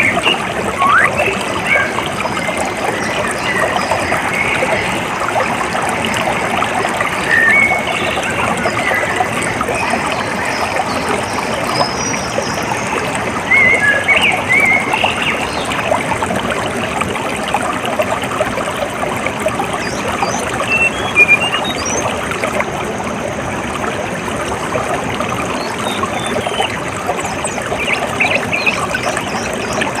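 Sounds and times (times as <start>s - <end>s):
water trickling: 0.0s - 30.0s
bird chirps: 0.2s - 1.9s, 20.6s - 22.0s.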